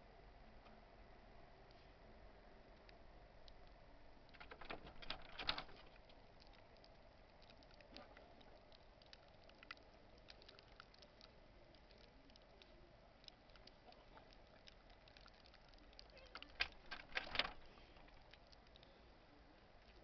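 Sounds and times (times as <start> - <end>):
low hiss: 0.0 - 20.0
faint light ticks: 5.4 - 19.1.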